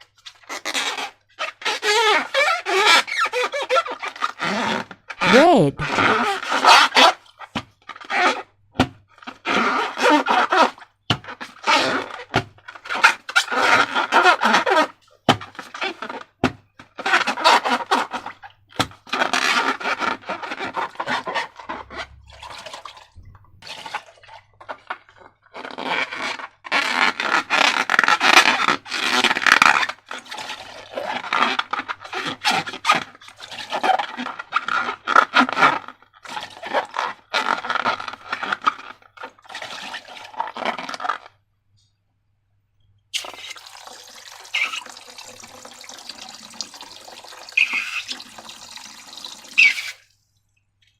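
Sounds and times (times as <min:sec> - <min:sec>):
wet slime squelching: 0:19.9 - 0:25.9, 0:43.2 - 0:50.9.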